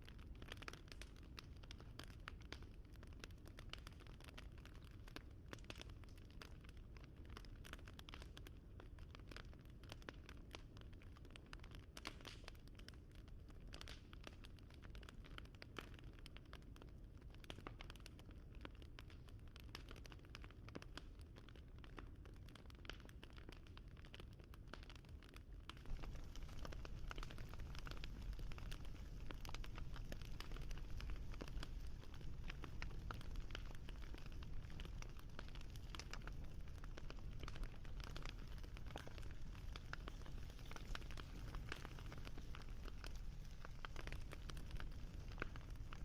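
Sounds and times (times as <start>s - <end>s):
fire crackling: 0.1s - 46.0s.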